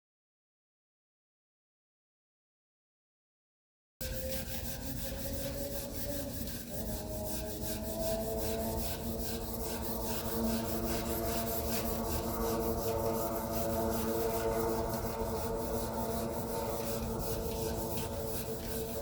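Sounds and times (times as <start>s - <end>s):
sanding strokes on paintwork: 4.0s - 19.0s
steady whine: 8.2s - 19.0s.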